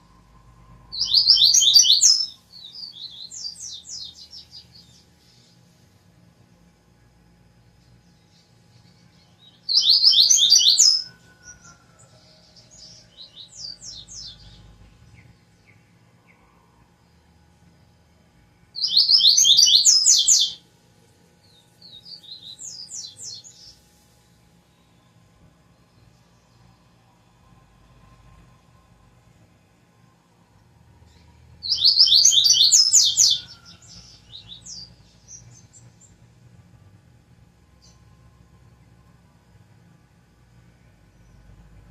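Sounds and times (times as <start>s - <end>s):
songbird singing: 0.0s - 5.8s, 7.8s - 17.4s, 18.8s - 20.6s, 21.4s - 23.8s, 31.0s - 36.2s.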